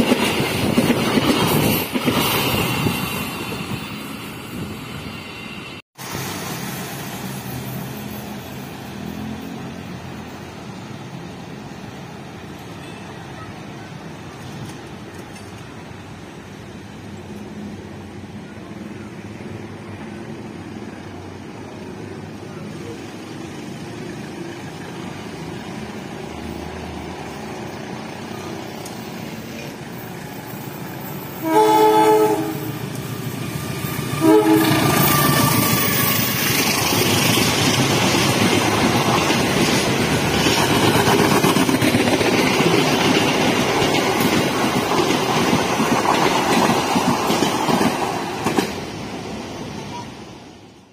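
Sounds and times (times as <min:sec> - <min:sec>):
train wheels running over rails: 0:00.0 - 0:05.0, 0:21.6 - 0:49.9
locomotive horn: 0:31.4 - 0:32.8, 0:34.1 - 0:35.9.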